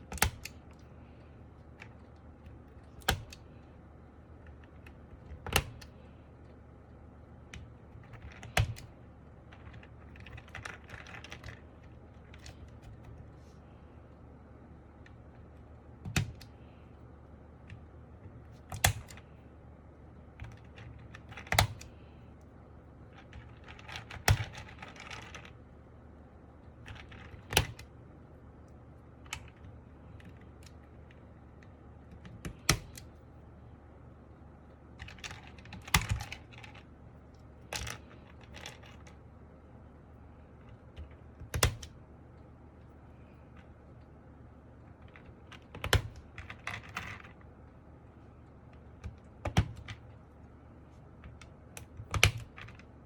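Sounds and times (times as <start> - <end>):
mechanical keyboard keystrokes: 0.0 - 0.8, 1.8 - 3.5, 4.4 - 5.9, 7.5 - 13.1, 16.0 - 16.6, 17.6 - 19.2, 20.4 - 22.0, 23.2 - 25.6, 26.8 - 27.9, 31.6 - 33.1, 35.0 - 36.9, 40.9 - 42.0, 45.0 - 47.3, 48.8 - 50.1, 51.2 - 52.9.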